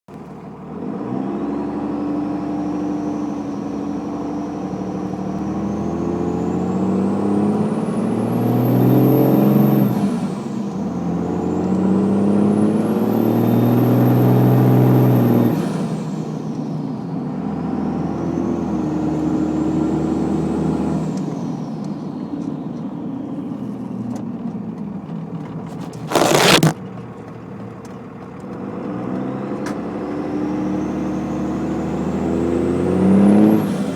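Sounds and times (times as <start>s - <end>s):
diesel truck engine revving: 28.6s - 33.9s.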